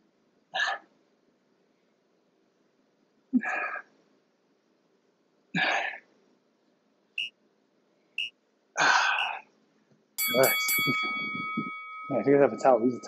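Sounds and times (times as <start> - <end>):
forceful exhalations of effort: 8.8 - 9.5.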